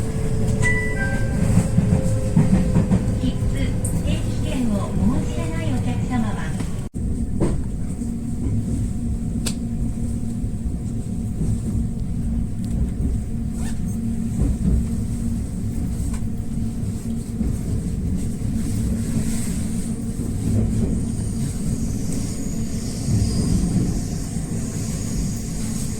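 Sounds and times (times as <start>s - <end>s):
train rumble from inside carriage: 0.0s - 25.9s.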